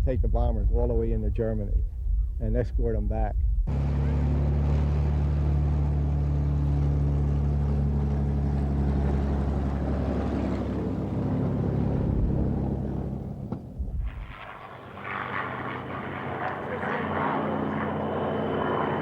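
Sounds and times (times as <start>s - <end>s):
aircraft piston engine drone: 3.7s - 19.0s.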